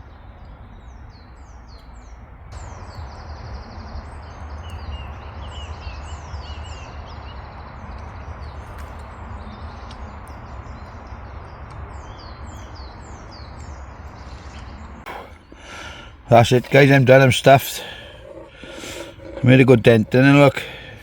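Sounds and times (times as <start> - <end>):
birds singing: 0.0 - 21.0
warbling chirps: 15.1 - 21.0.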